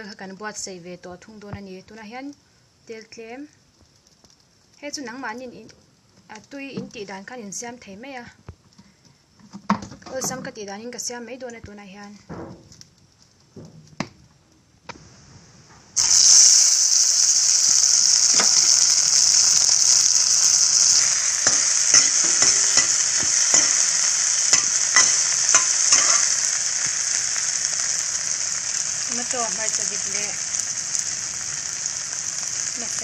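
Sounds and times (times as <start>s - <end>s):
tomato sizzling in hot oil: 14.9s - 33.0s
ladle scraping and tapping wok: 20.8s - 26.9s.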